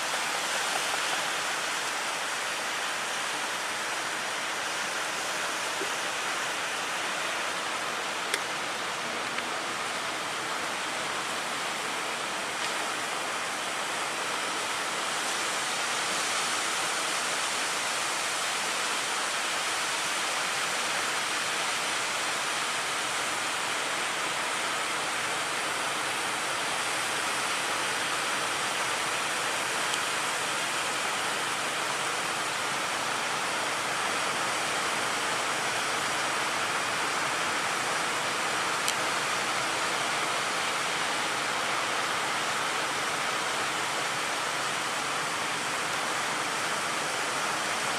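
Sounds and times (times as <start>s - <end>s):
surf and rushing water: 0.0s - 47.9s.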